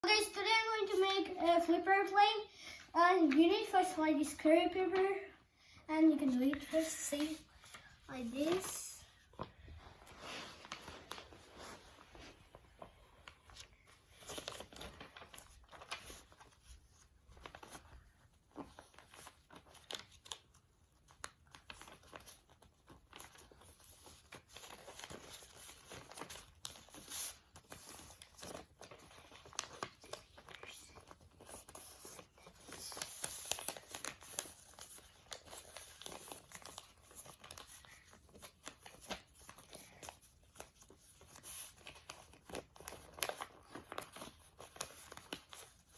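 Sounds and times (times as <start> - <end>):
paper being folded and creased: 6.2 - 45.9.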